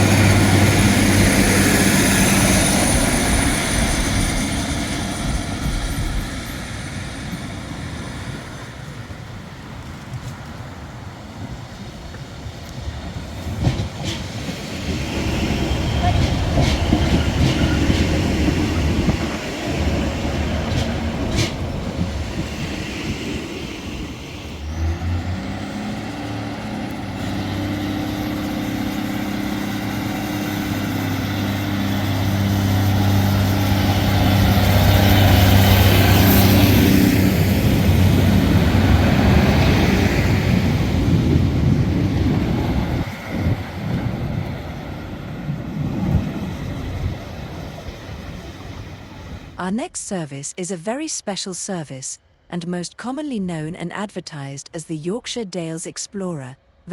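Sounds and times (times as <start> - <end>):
high whine rising in pitch: 0.0 - 8.8
train running on rails: 0.0 - 50.0.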